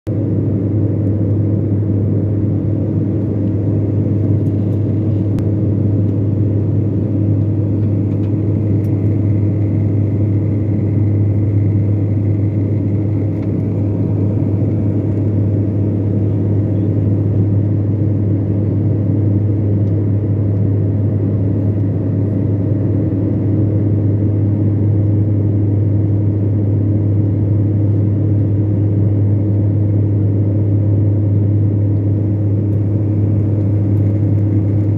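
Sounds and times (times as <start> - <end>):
jet engine cabin drone: 0.1 - 34.9.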